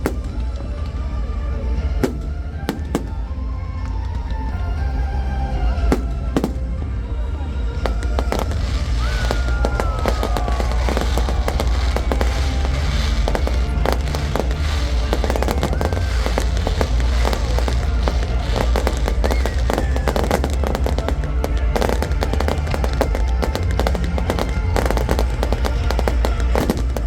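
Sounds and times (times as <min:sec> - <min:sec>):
descending firework whistle: 0:00.0 - 0:01.1, 0:07.9 - 0:27.0
fireworks bangs and crackling: 0:00.0 - 0:27.0
low rumble: 0:00.0 - 0:27.0.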